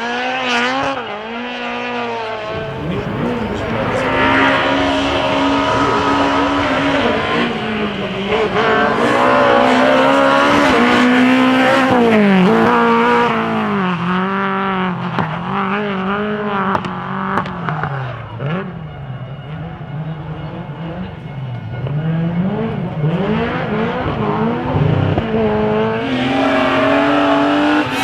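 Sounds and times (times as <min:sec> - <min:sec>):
car engine revving: 0:00.0 - 0:18.8, 0:19.6 - 0:28.0
sharp exhaust cracks: 0:02.5 - 0:13.8.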